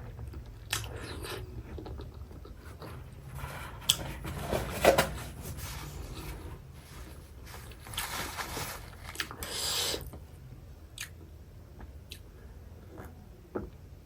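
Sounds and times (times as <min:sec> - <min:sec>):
person chewing food: 0:00.2 - 0:02.9.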